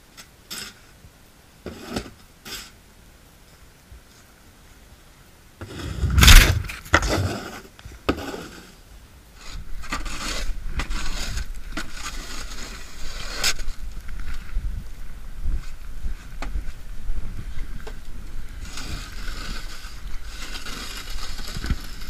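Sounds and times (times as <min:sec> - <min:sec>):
snow shovel scraping: 0:05.6 - 0:08.8, 0:09.4 - 0:13.8, 0:18.6 - 0:22.0.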